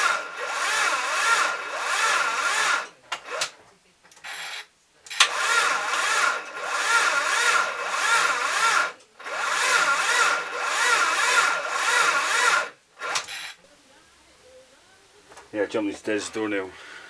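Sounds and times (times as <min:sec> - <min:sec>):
starter motor cranking: 0:00.0 - 0:03.6, 0:04.2 - 0:13.6.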